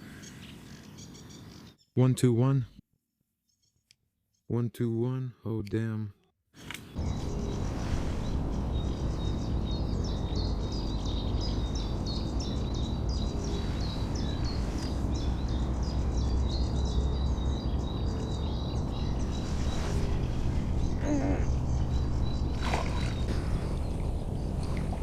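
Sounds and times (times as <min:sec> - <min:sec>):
songbird chirping: 0:00.0 - 0:02.8, 0:06.7 - 0:25.0
low outdoor rumble: 0:07.0 - 0:25.0.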